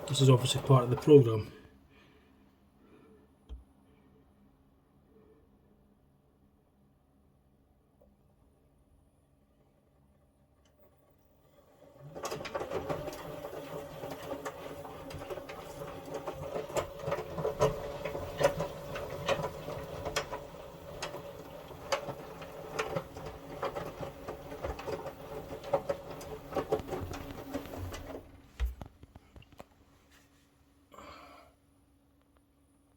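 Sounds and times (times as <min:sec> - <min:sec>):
washing machine motor humming: 0:00.0 - 0:02.1, 0:08.5 - 0:29.6
washing machine clicks and knocks: 0:12.0 - 0:28.9.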